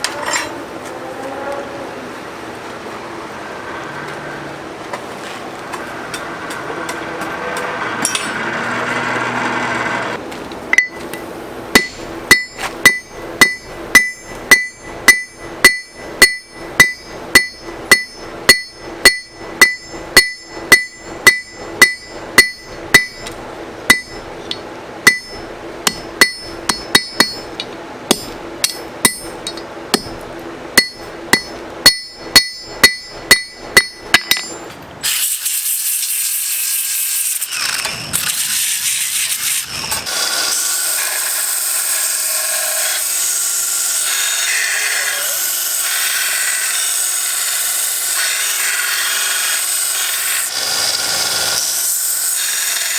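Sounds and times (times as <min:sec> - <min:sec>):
hammer striking metal: 0:06.1 - 0:08.6, 0:10.7 - 0:34.8.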